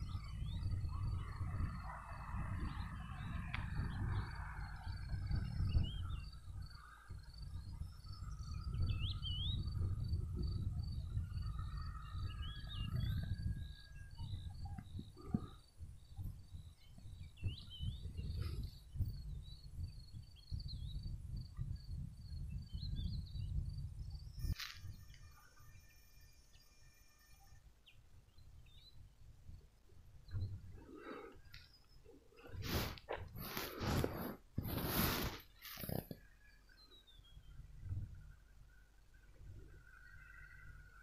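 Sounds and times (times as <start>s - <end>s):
birds chirping: 0.0s - 21.1s, 21.8s - 41.0s
low rumbling noise: 29.0s - 36.2s.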